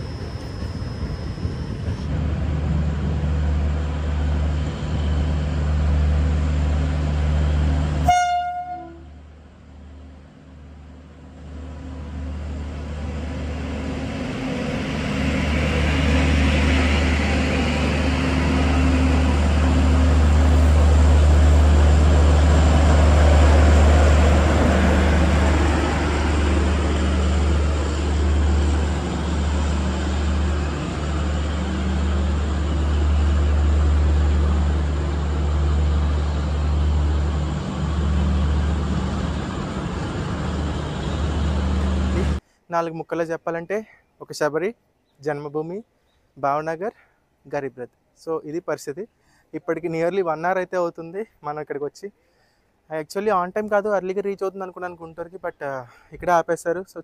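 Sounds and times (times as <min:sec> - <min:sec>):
train passing: 0:00.0 - 0:42.4.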